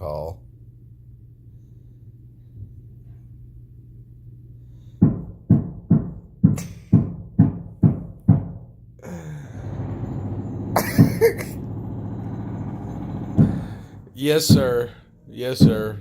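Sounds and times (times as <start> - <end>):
sledgehammer banging on a wall: 5.0 - 8.7, 13.1 - 14.9, 15.6 - 16.0
steady machine noise: 9.4 - 14.9.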